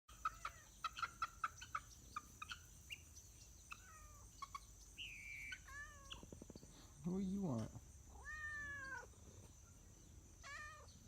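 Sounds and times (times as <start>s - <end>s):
poultry clucking and chirping: 0.1s - 6.9s, 8.2s - 11.0s.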